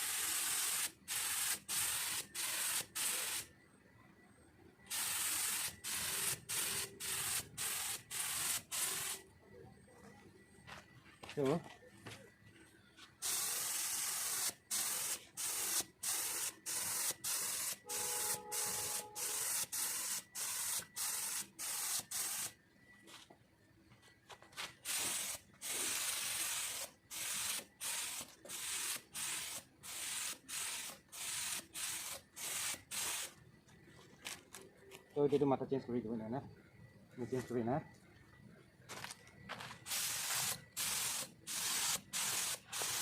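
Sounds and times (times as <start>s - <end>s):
paint spray gun hissing bursts: 0.0s - 3.5s, 4.9s - 9.2s, 13.2s - 22.5s, 24.8s - 33.4s, 39.8s - 43.0s.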